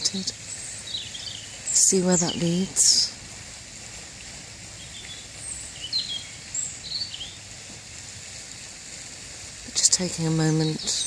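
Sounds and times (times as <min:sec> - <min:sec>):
outdoor background hiss: 0:00.0 - 0:11.0
high bird chirps: 0:00.6 - 0:02.7, 0:04.8 - 0:07.4.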